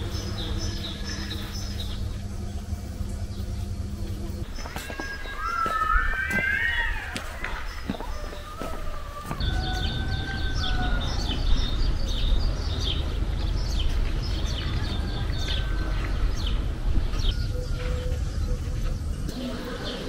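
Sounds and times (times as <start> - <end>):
small birds chirping: 0.0 - 20.0
long drawn-out bird call: 4.6 - 12.0.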